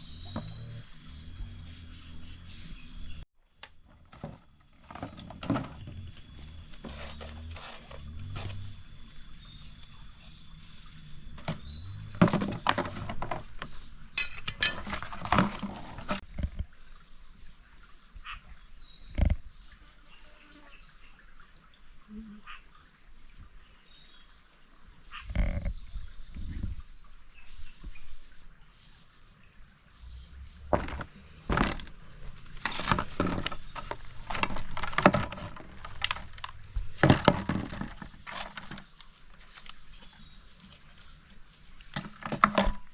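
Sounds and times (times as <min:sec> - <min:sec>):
high-pitched insect chorus: 0:00.0 - 0:42.9
rustling: 0:30.7 - 0:41.2.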